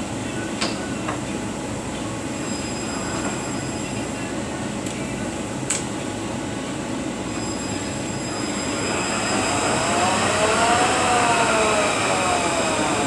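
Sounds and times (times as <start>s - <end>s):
sharp click: 5.7s - 5.9s
gear whine rising: 7.3s - 13.0s
transmission mechanical drone: 7.7s - 13.0s.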